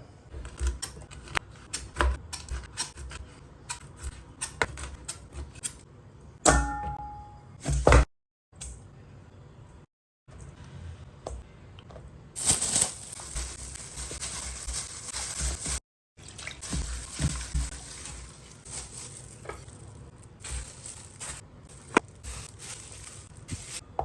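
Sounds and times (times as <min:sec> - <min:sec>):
water running from a tap: 0:16.2 - 0:18.6.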